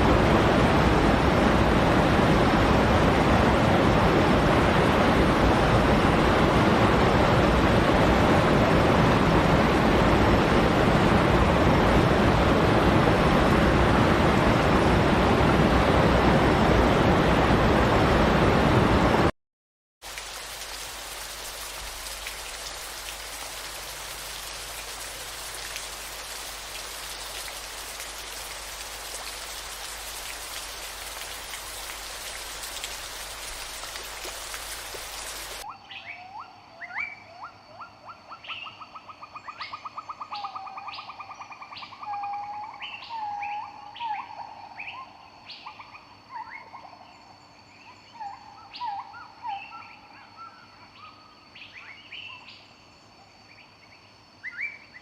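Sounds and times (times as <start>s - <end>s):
heavy rain hissing: 20.0s - 35.7s.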